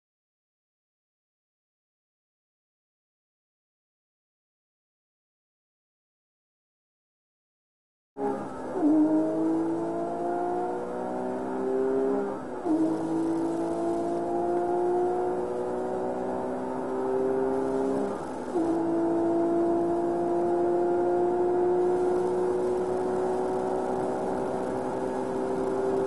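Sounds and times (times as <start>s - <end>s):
car engine at full throttle: 8.2s - 26.0s.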